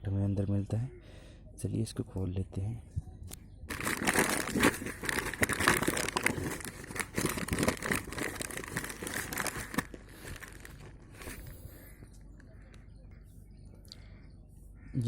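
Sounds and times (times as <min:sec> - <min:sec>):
packaging crinkling and tearing: 0:03.7 - 0:11.6.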